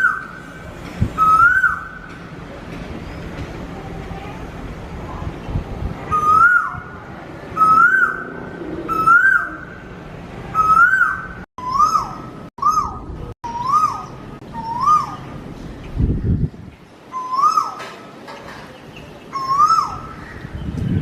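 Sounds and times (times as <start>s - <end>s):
bird whistled calls: 1.2s - 2.0s, 6.1s - 6.9s, 7.6s - 9.8s, 10.6s - 15.3s, 17.1s - 17.8s, 19.3s - 20.4s.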